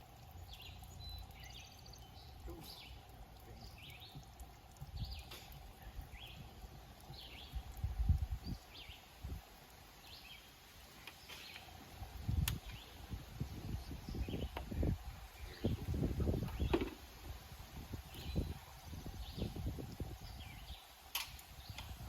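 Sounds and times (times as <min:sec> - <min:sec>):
bird chirping: 0:00.2 - 0:07.8, 0:18.0 - 0:20.9
low handling thumps: 0:13.6 - 0:17.4.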